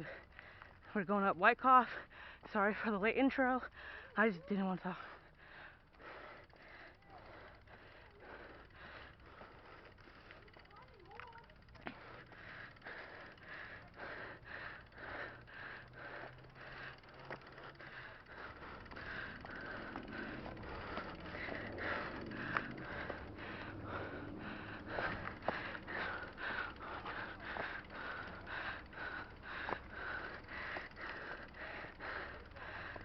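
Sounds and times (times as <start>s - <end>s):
person breathing hard: 0.0s - 0.9s, 1.9s - 2.5s, 3.6s - 4.2s, 4.9s - 33.0s.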